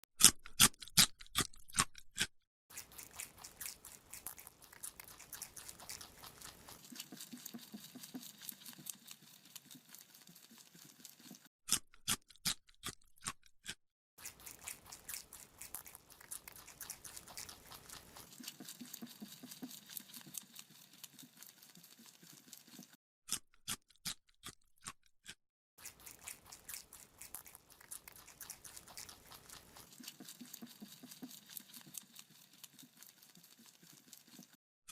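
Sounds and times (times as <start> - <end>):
rabbit crunching carrot: 0.2 - 34.6
rabbit chewing: 2.7 - 11.5, 14.2 - 23.0, 25.8 - 34.6.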